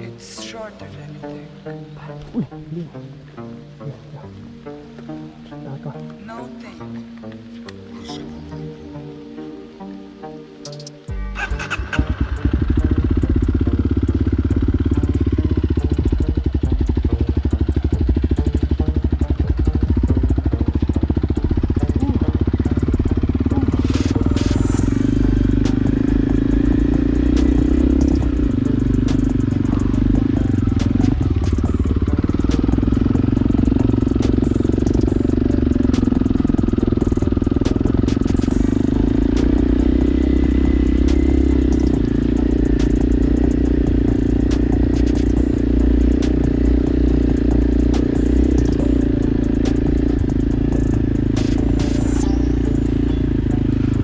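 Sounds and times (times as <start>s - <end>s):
motorcycle engine running: 11.1s - 54.0s.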